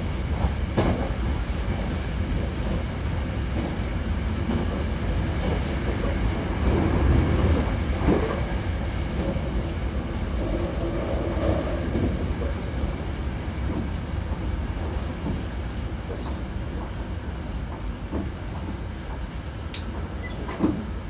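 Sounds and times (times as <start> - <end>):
train wheels rumbling on rail: 0.0 - 21.0
light clicks from track: 19.7 - 20.8.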